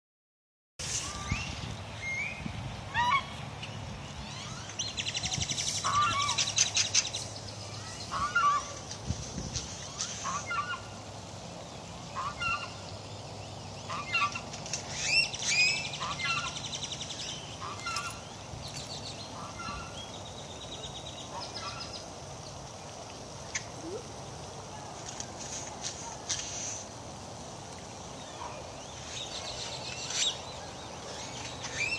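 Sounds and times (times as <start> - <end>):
birds calling: 1.1 - 9.0, 9.6 - 24.4, 28.0 - 31.9
raspy buzzy bird calls: 13.8 - 20.2, 28.3 - 31.9.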